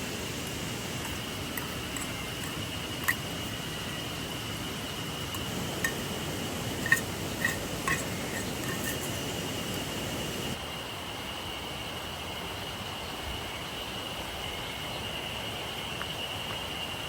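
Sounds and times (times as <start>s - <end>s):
river flowing: 0.0s - 10.6s.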